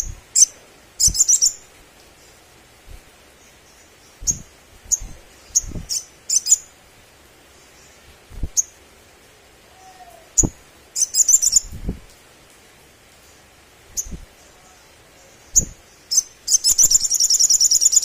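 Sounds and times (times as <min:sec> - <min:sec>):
bird chip calls and chattering: 0:00.0 - 0:01.6, 0:10.4 - 0:11.7, 0:15.3 - 0:18.0.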